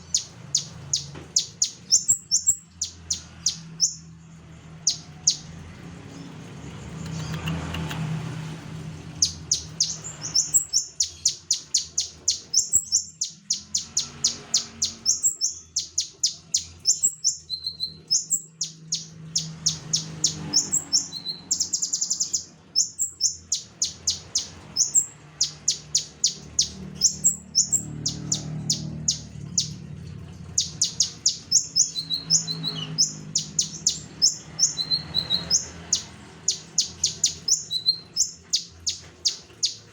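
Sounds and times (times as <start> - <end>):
songbird singing high notes: 0.0 - 4.1, 30.6 - 39.8.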